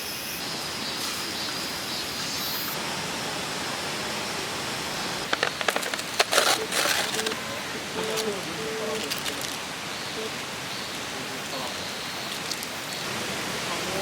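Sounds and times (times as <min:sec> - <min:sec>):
stream rushing: 0:00.8 - 0:14.0
short clicks and rustles: 0:05.3 - 0:07.4.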